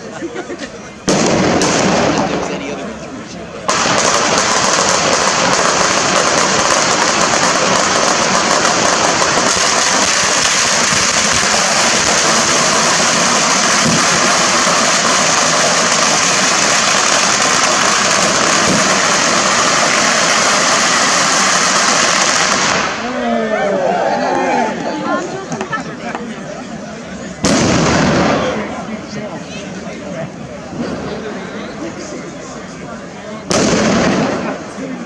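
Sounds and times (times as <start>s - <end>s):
firecrackers crackling: 1.0s - 23.2s, 27.2s - 29.6s, 33.3s - 35.0s.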